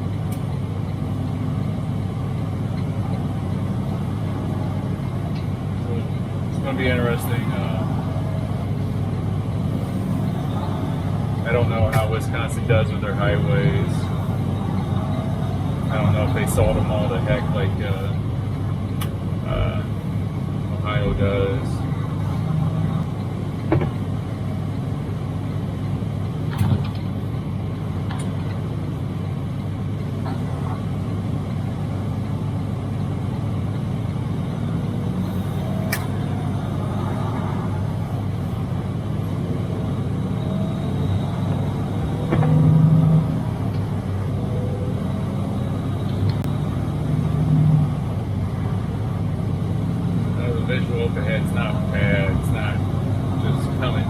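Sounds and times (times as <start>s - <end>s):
truck engine and road drone: 0.0s - 54.0s.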